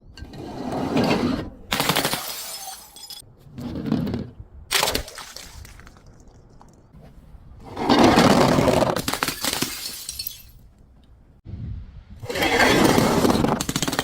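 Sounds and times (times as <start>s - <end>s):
glass bottles shattering: 1.8s - 3.2s, 9.0s - 10.6s
glass fragments tinkling: 2.1s - 3.2s, 9.4s - 10.6s.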